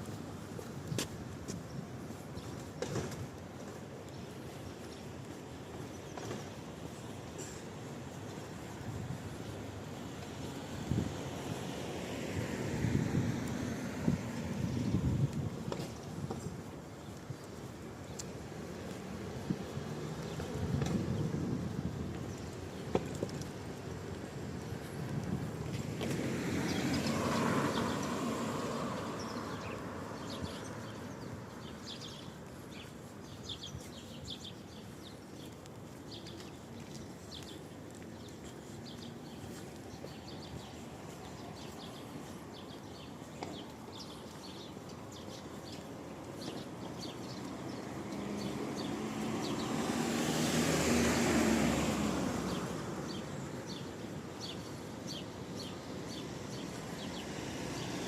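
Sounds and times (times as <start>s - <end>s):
small birds chirping: 0.6s - 10.7s, 26.1s - 58.0s
car passing on wet road: 10.6s - 14.7s, 24.3s - 31.7s, 47.1s - 53.5s, 55.5s - 58.0s.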